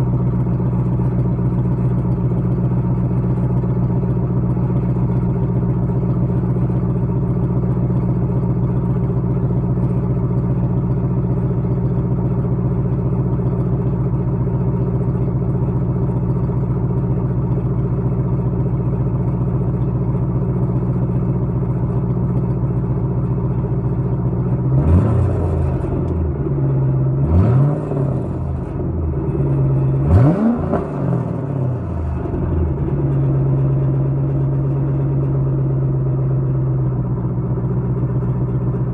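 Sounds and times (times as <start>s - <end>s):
car engine idling: 0.0s - 38.9s
exhaust rattle: 0.0s - 38.9s
engine revving: 24.7s - 26.2s, 27.1s - 28.9s, 29.6s - 32.4s.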